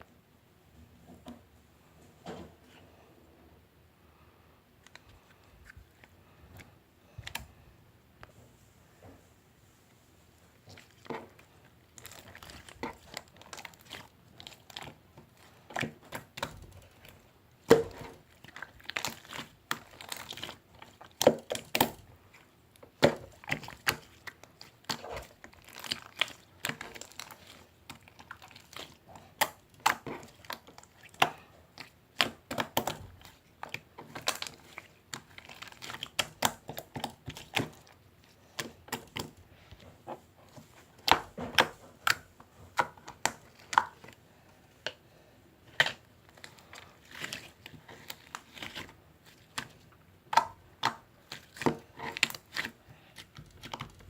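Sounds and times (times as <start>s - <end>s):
hands squishing slime: 10.5s - 45.0s, 45.6s - 54.0s.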